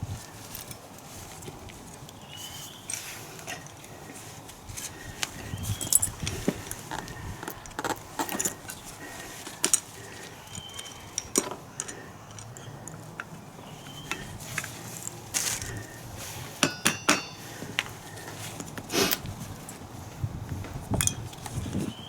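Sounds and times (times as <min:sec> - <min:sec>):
metal tools being handled: 0:00.4 - 0:04.2, 0:04.8 - 0:13.3, 0:14.0 - 0:18.8, 0:21.0 - 0:21.6
ringing metallic clinks: 0:16.6 - 0:17.7.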